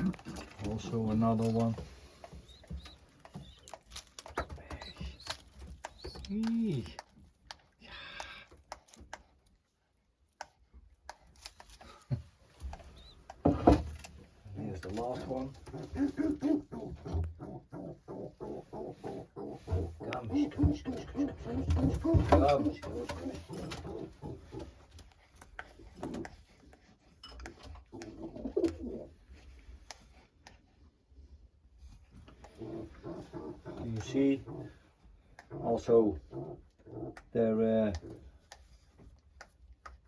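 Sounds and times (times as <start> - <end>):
rustling: 0.0 - 7.6
pigeons cooing: 15.0 - 24.9, 27.9 - 29.2, 32.4 - 34.8.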